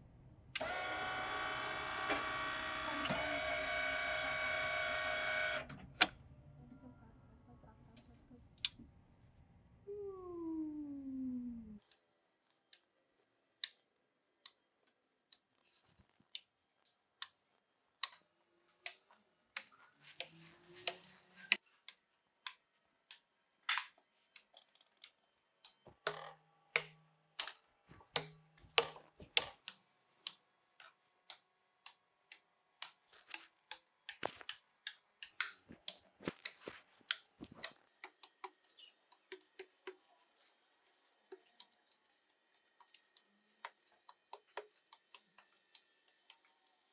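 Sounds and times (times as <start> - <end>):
brief low hums: 9.9 - 11.8
sharp clicks and taps: 26.8 - 46.5.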